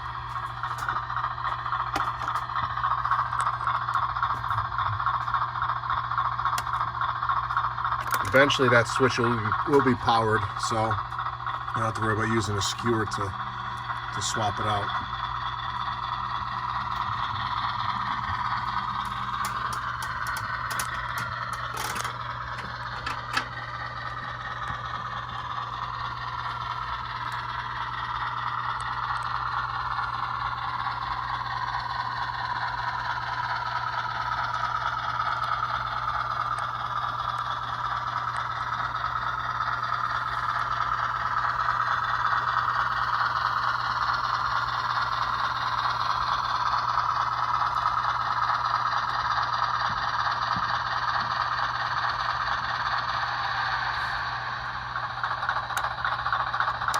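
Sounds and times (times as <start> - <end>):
wheels rattling on rail: 0.0 - 54.3
model train motor whirring: 0.0 - 56.9.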